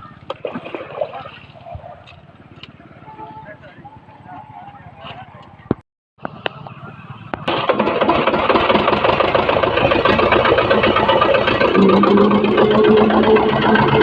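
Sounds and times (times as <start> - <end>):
tractor engine chugging: 6.4 - 14.0.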